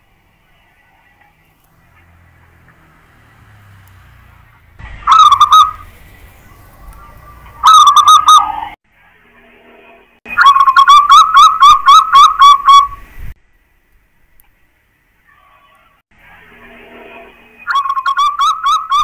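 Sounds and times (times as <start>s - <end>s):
dove cooing: 5.1s - 8.8s.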